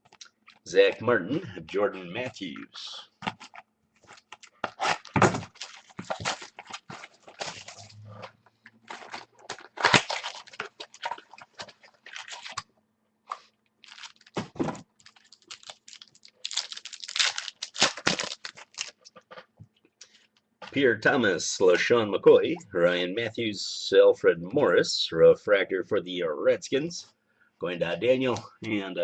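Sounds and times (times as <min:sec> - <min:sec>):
cards and packaging rustling: 0:03.2 - 0:08.0, 0:08.6 - 0:12.7, 0:13.3 - 0:19.4.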